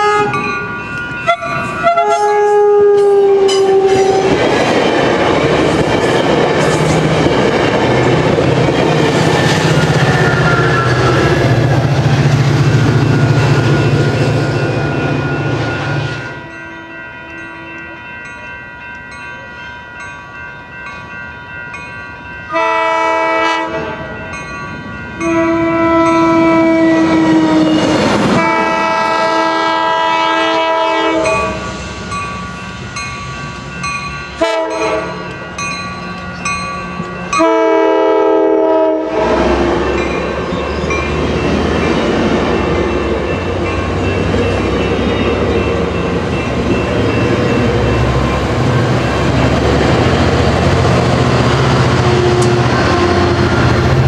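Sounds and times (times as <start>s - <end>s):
train horn blasts: 0.0s - 0.4s, 1.2s - 4.4s, 22.5s - 24.1s, 25.2s - 31.7s, 34.4s - 35.2s, 37.3s - 39.9s, 51.9s - 53.6s
train wheels rumbling on rails: 0.0s - 16.6s, 21.7s - 54.0s.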